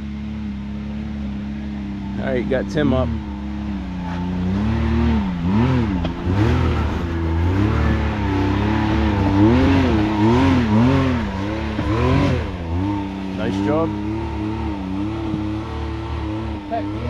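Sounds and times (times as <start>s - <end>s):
engine revving in quick blips: 2.1s - 17.0s.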